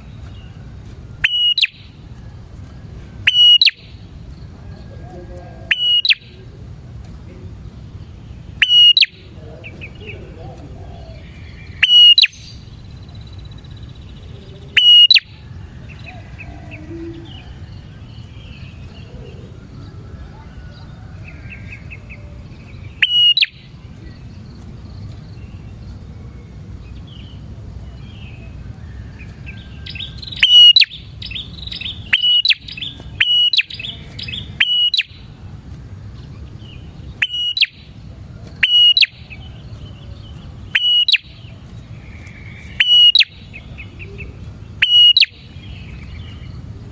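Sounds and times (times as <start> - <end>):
bird chattering notes: 1.2 - 2.0, 3.2 - 4.2, 5.0 - 15.4, 22.8 - 24.2, 29.9 - 35.4, 36.5 - 39.6, 40.4 - 46.3
bird sharp call notes: 1.2 - 2.0, 3.2 - 4.1, 5.6 - 6.5, 8.5 - 12.7, 14.4 - 17.6, 22.9 - 23.8, 29.6 - 35.4, 37.1 - 40.0, 40.6 - 45.9.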